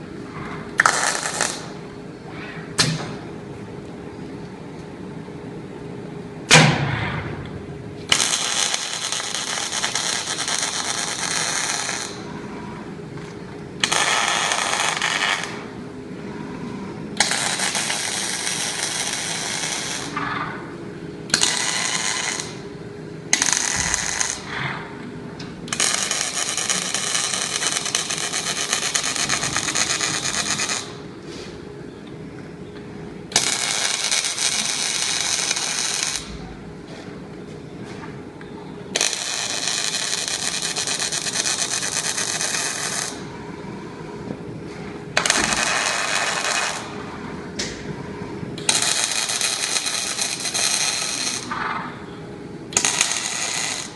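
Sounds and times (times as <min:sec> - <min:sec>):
machine hum: 0:00.0 - 0:53.9
arc welder crackling: 0:00.8 - 0:01.9, 0:06.6 - 0:12.3, 0:13.8 - 0:15.8, 0:17.2 - 0:31.2, 0:33.3 - 0:36.5, 0:38.9 - 0:43.3, 0:45.1 - 0:52.1, 0:52.7 - 0:53.9.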